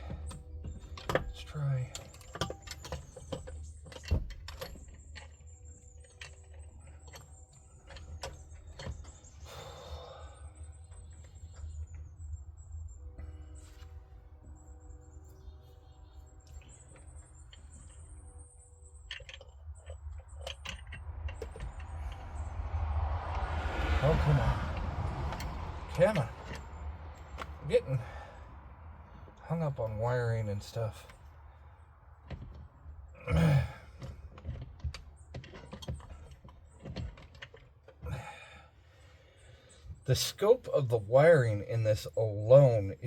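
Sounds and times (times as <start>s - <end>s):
parts clicking and rattling: 0.0s - 40.8s
person grunting: 33.2s - 33.8s.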